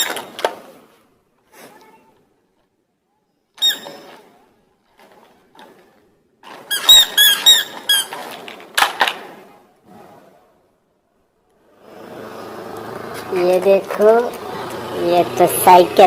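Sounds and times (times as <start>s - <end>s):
squeaky toy squeaking: 3.6s - 4.2s, 6.7s - 8.2s.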